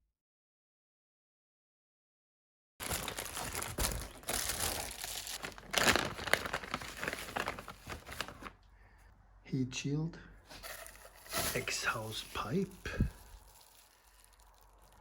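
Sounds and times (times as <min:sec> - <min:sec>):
packaging crinkling and tearing: 0:02.8 - 0:08.6, 0:10.6 - 0:15.0.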